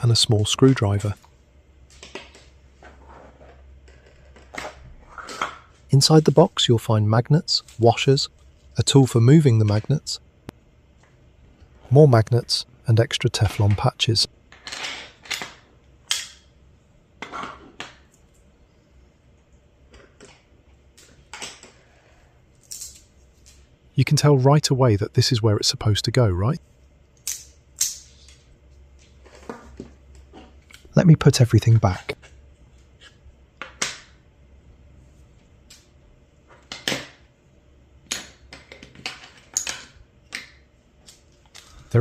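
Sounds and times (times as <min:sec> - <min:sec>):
magnets and washers clicking: 0:22.6 - 0:23.6.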